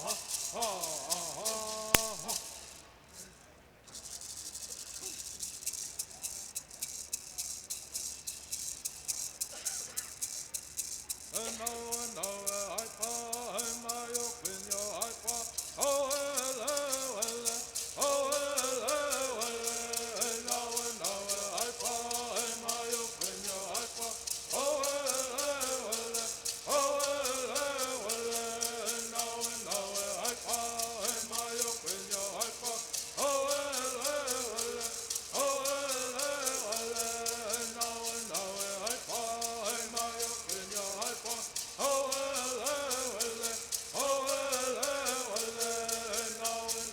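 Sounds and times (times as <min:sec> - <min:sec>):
voices singing in unison: 0:00.0 - 0:02.9, 0:11.3 - 0:46.9
gourd rattles shaking: 0:00.0 - 0:46.9.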